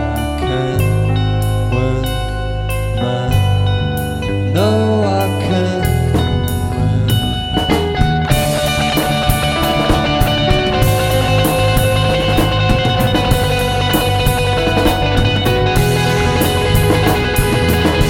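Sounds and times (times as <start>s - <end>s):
electric guitars: 0.0s - 18.0s
drum-kit beat: 5.8s - 18.0s.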